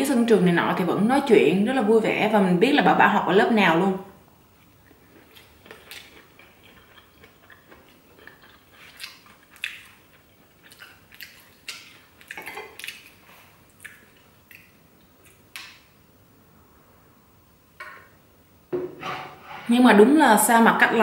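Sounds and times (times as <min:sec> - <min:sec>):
person chewing and smacking: 0:04.6 - 0:15.9
chopsticks and spoon on plate: 0:11.6 - 0:12.9.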